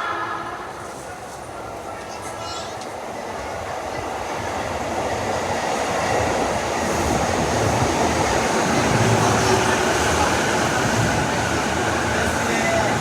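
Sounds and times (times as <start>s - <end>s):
electric train running: 4.8s - 13.0s.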